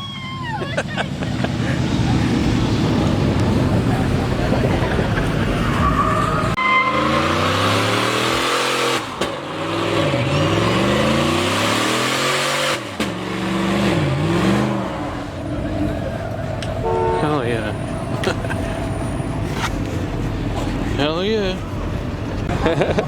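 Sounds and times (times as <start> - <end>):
tires squealing and skidding: 0.0 - 21.8
car engine revving hard: 1.2 - 15.9.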